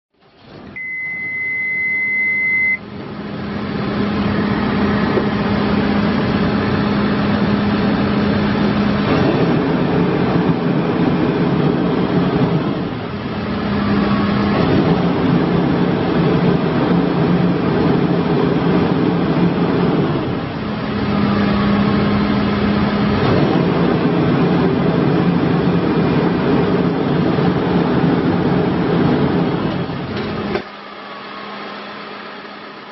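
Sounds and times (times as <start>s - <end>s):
diesel engine running: 0.4s - 32.9s
electronic warning beep: 0.8s - 2.9s.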